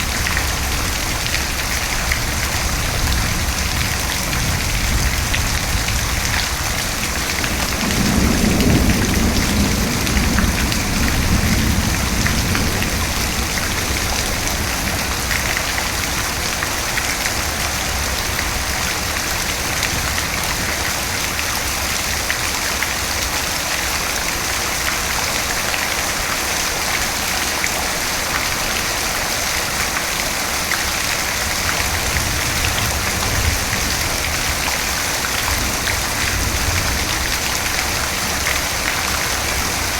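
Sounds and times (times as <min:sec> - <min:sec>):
thunder rumble: 0:00.0 - 0:16.8
steady rain: 0:00.0 - 0:39.9.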